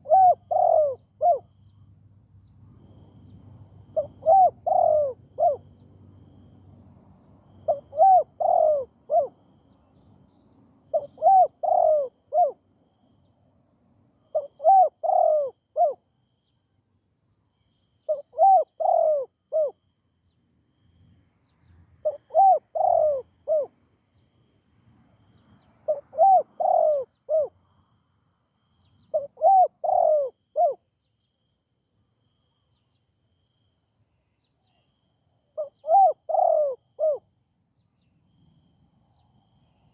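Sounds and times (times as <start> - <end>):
dove cooing: 0.0 - 1.5, 3.9 - 5.7, 7.6 - 9.4, 10.9 - 12.6, 14.3 - 16.0, 18.1 - 19.8, 22.0 - 23.8, 25.9 - 27.5, 29.1 - 30.8, 35.6 - 37.3.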